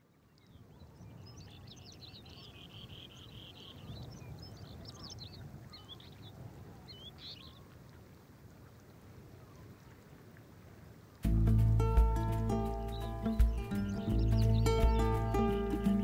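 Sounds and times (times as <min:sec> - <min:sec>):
birds calling: 0:11.3 - 0:16.0.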